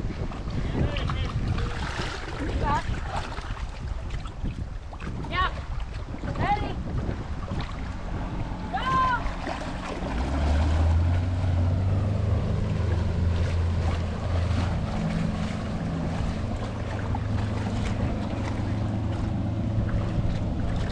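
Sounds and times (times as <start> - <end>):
motorboat engine humming: 0.0 - 20.9
rushing water: 0.0 - 20.9
wind noise on microphone: 0.0 - 20.9.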